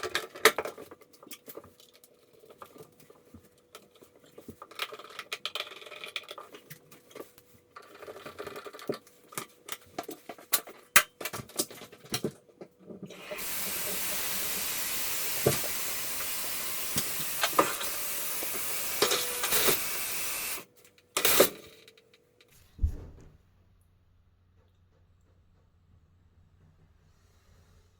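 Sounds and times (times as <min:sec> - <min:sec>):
shower water spraying: 0:13.1 - 0:20.6
parts clicking and knocking: 0:14.7 - 0:23.4.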